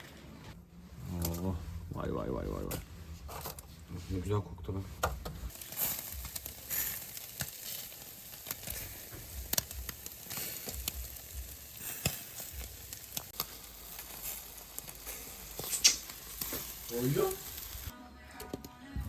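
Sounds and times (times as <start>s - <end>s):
pops and crackles: 5.5s - 16.9s
food sizzling on grill: 5.5s - 17.9s.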